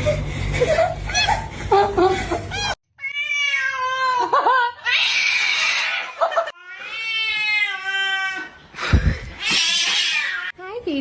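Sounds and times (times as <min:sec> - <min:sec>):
cats meowing and yowling: 0:02.6 - 0:08.5, 0:09.4 - 0:10.5.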